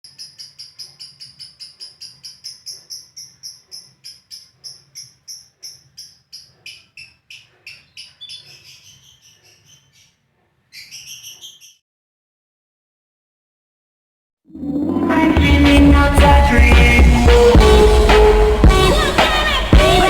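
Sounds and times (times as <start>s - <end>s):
lovebird chattering: 0.1s - 11.8s.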